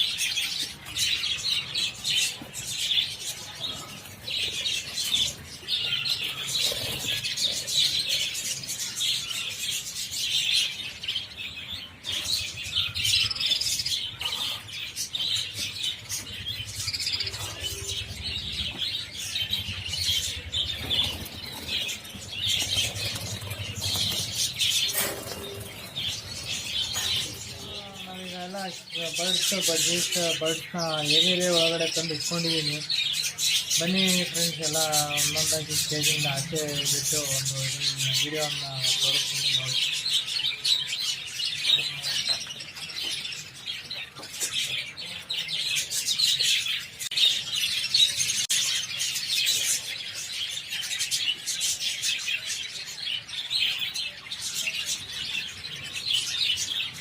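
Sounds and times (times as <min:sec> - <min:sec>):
budgerigars chattering and chirping: 0:00.0 - 0:57.0
wings fluttering: 0:19.5 - 0:27.7.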